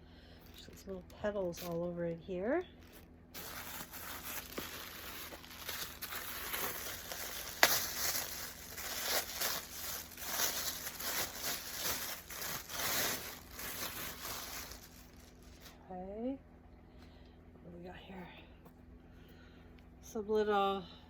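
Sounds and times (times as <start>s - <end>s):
packaging rustling and crinkling: 2.7s - 15.8s.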